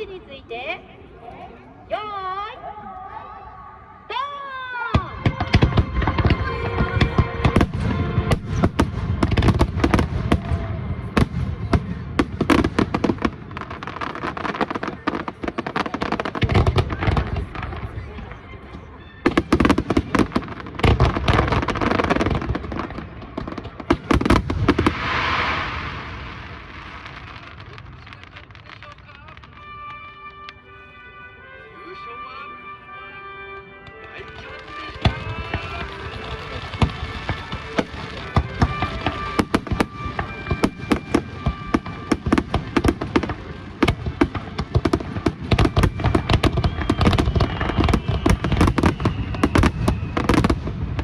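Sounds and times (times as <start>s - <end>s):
background music: 1.7s - 11.8s, 29.5s - 46.8s
fireworks bursting with sharp bangs: 4.9s - 30.7s, 33.6s - 51.0s
dense fireworks hiss: 19.5s - 29.6s, 34.2s - 51.0s.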